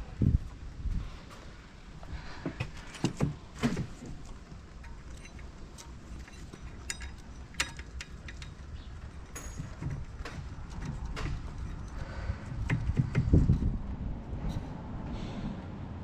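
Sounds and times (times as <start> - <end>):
metal tools clinking: 3.7 - 12.4.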